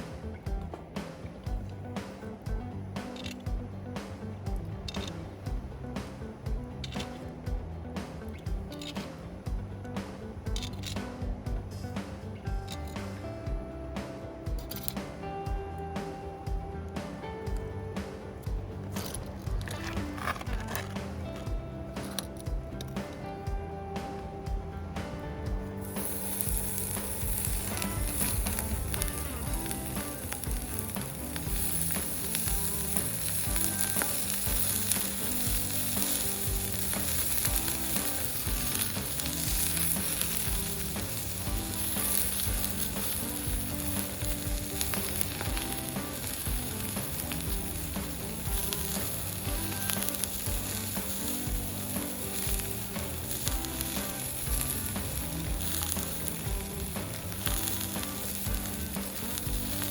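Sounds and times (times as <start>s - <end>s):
meat sizzling on iron plate: 25.8s - 59.9s.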